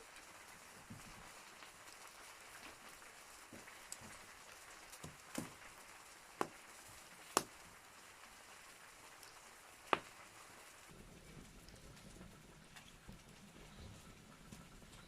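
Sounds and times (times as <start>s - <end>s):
wood fire crackling: 0.0s - 15.0s
sharp fire pops: 6.4s - 7.8s, 9.2s - 10.4s.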